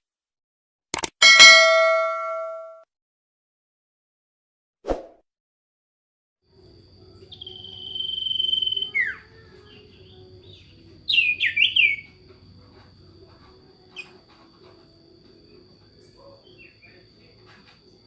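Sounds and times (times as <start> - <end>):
thin high tone: 1.2 - 2.8
songbird whistling and chirping: 7.1 - 12.2, 13.9 - 14.2, 15.5 - 18.0.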